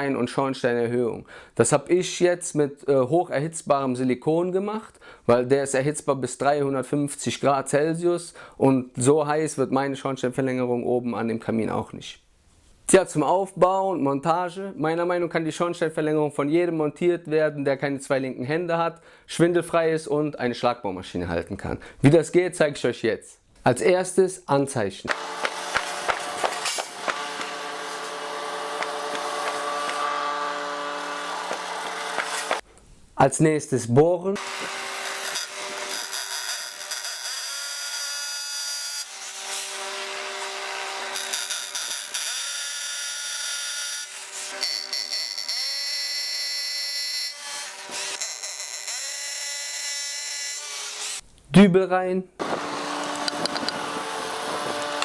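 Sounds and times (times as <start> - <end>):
hammer drill motor whining: 34.4 - 37.0, 52.4 - 55.0.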